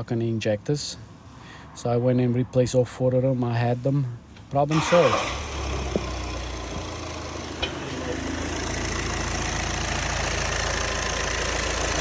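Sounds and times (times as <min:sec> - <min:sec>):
diesel engine idling: 0:04.7 - 0:12.0.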